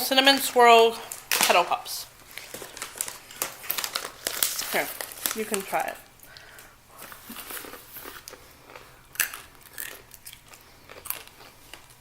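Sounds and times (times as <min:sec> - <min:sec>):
person chewing crunchy snacks: 0:02.3 - 0:05.4, 0:06.3 - 0:12.0.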